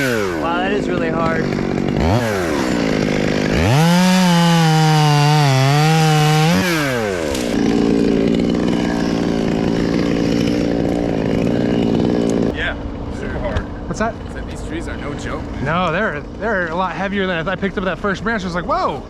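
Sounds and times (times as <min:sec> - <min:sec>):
chainsaw cutting wood: 0:00.0 - 0:13.8.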